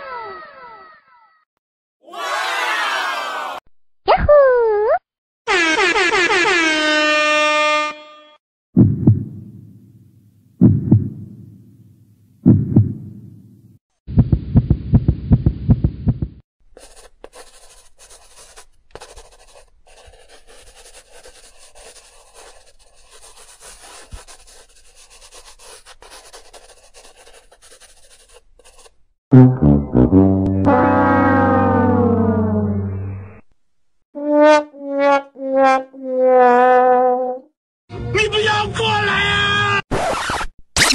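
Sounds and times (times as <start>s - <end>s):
deep booming hits: 8.8s - 9.8s, 10.6s - 11.6s, 29.3s - 33.2s
rapid low pulsing: 8.8s - 9.8s, 10.6s - 11.7s, 12.4s - 13.4s, 29.3s - 33.4s.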